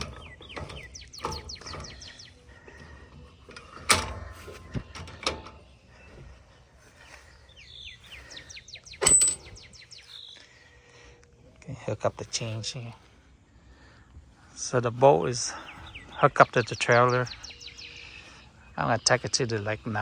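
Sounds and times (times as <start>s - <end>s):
metallic clanks of trailer hitch: 0.0s - 6.2s, 8.8s - 9.8s
small birds chirping: 0.0s - 20.0s.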